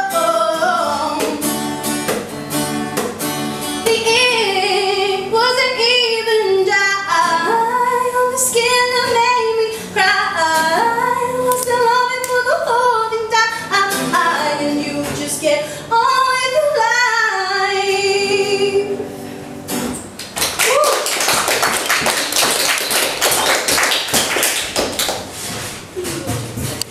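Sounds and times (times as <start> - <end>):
woman singing: 0.0 - 1.5, 3.8 - 19.1.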